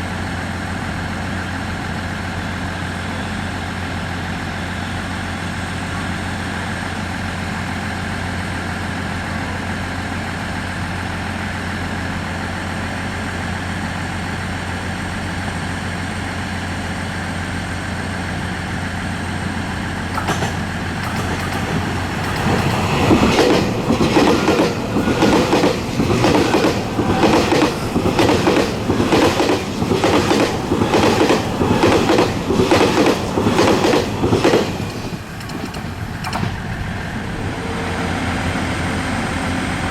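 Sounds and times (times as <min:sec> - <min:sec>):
diesel train idling hum: 0:00.0 - 0:39.9
electric train passing: 0:00.0 - 0:39.9
wheels clacking over rail joints: 0:19.2 - 0:37.4.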